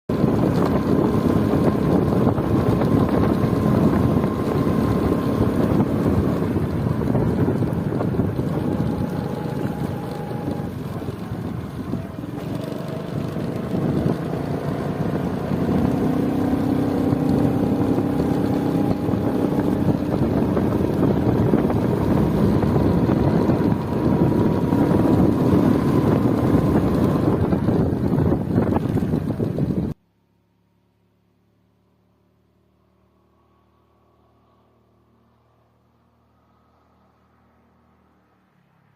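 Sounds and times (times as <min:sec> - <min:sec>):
steady rumbling noise: 0:00.1 - 0:30.0
wind on microphone: 0:00.1 - 0:30.0.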